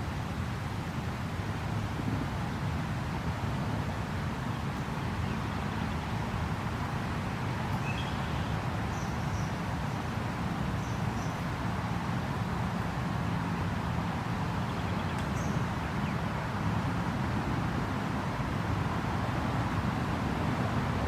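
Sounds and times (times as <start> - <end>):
faint bird chirps: 7.8 - 9.5.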